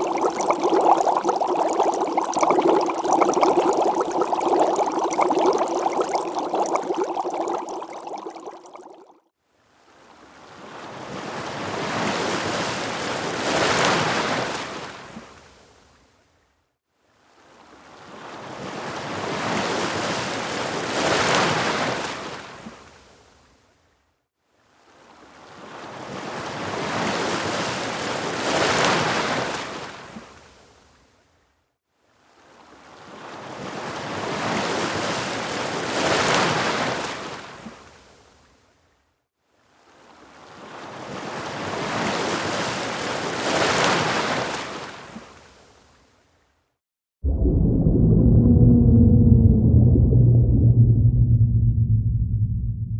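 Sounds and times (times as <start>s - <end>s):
ocean waves washing in: 0.0s - 9.1s, 47.2s - 52.9s.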